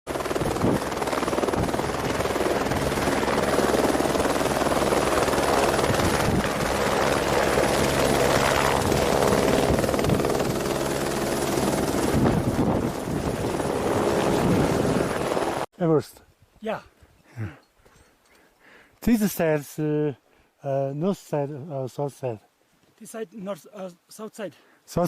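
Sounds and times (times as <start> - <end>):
helicopter rotor drone: 0.1 - 15.7.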